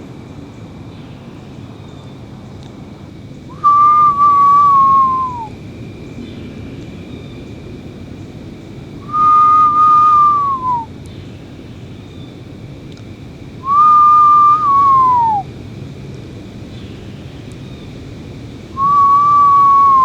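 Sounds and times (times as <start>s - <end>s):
person whistling sliding notes: 3.6s - 5.5s, 9.1s - 10.9s, 13.7s - 15.4s.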